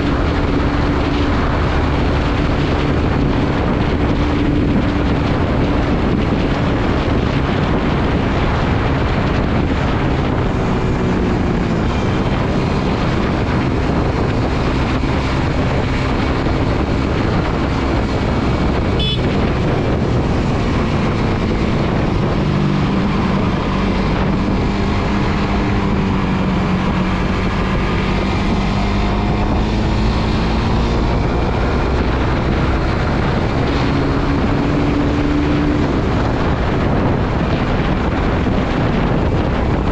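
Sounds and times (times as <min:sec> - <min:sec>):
motorcycle engine running: 0:00.0 - 0:31.3
wind noise on microphone: 0:00.0 - 0:39.9.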